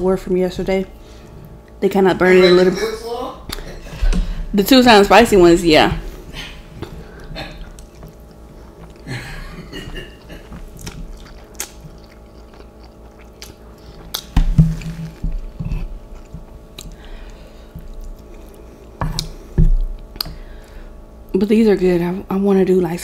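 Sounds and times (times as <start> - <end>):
chewing noodles: 6.6 - 20.7
wet mouth clicks: 10.3 - 14.4.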